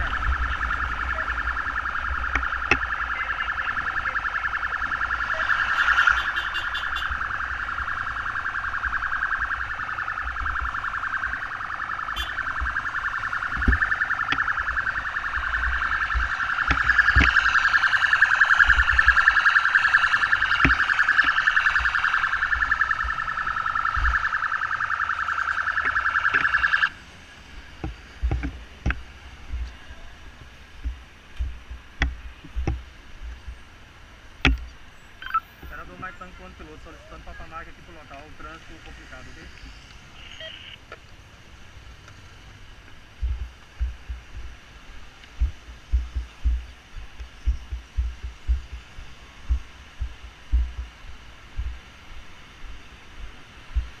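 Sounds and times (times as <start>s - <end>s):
electronic siren warbling: 0.0s - 27.0s, 35.2s - 39.6s, 40.2s - 40.8s
low rumble: 42.6s - 54.0s.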